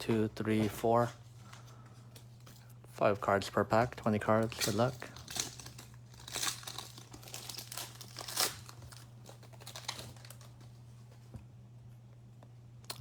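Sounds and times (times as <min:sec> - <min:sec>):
foil wrapper crinkling and tearing: 0:04.3 - 0:10.8.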